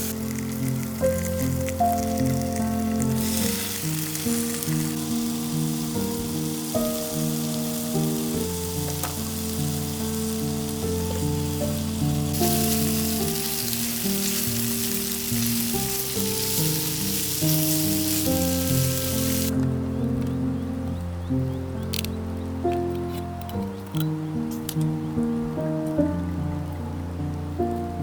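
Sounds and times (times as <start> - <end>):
food sizzling in a pan: 0.0 - 19.6
background music: 0.0 - 28.0.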